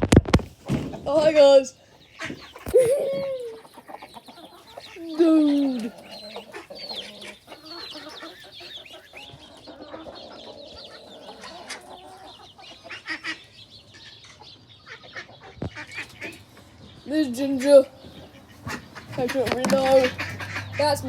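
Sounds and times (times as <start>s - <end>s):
chickens clucking: 0.0s - 21.0s
chicks peeping: 0.0s - 21.0s.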